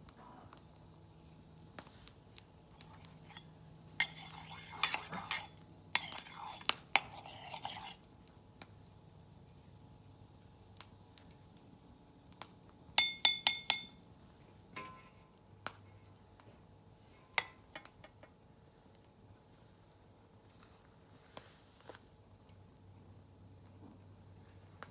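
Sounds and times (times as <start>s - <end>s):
utensils clinking against cookware: 2.8s - 8.0s, 13.0s - 14.0s, 14.8s - 15.3s, 17.2s - 18.3s.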